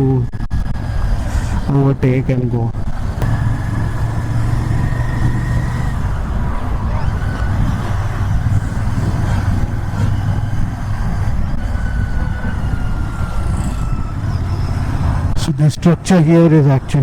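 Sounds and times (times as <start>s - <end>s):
road and wind noise: 0.0s - 17.0s
motorcycle engine running: 2.7s - 15.5s.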